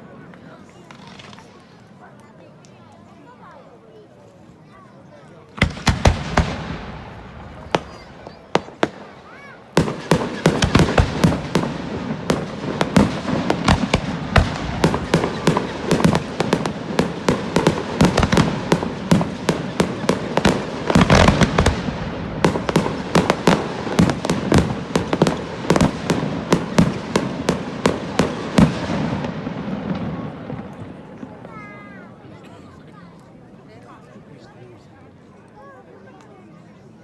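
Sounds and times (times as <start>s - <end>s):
fireworks rumble: 0.2s - 2.0s, 5.5s - 32.3s
fireworks bangs: 0.8s - 1.8s, 5.6s - 31.6s.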